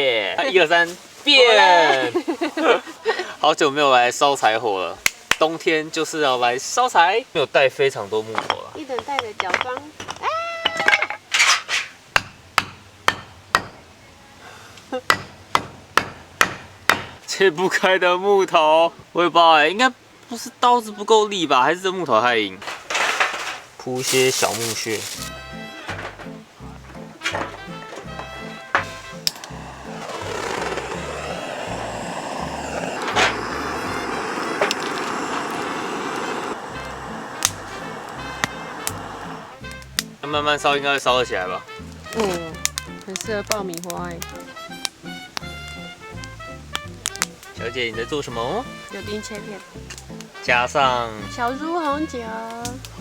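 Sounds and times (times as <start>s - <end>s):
blade striking firewood: 12.2s - 13.8s, 15.1s - 17.2s
hissing gas jet: 23.4s - 25.4s, 28.8s - 40.7s.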